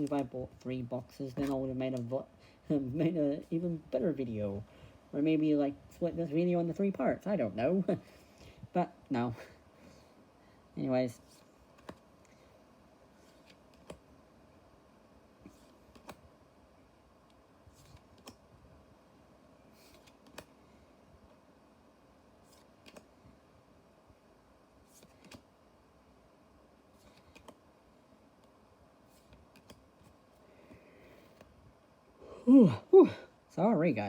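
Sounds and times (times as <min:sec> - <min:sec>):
trading cards clicking and rustling: 0:01.1 - 0:02.1, 0:11.2 - 0:12.3, 0:13.2 - 0:14.0, 0:15.5 - 0:16.2, 0:17.7 - 0:18.4, 0:19.7 - 0:20.6, 0:22.4 - 0:23.1, 0:24.9 - 0:25.5, 0:26.9 - 0:27.6, 0:29.1 - 0:31.5.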